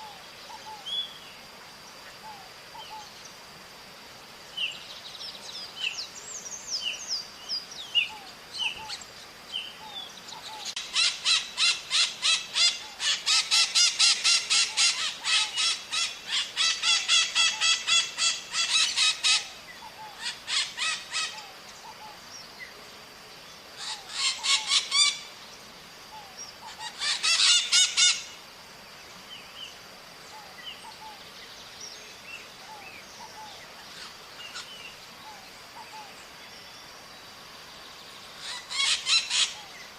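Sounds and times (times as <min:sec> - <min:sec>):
parrots screeching: 0:10.8 - 0:19.5, 0:20.2 - 0:21.4, 0:23.8 - 0:25.2, 0:26.7 - 0:28.2, 0:38.4 - 0:39.6.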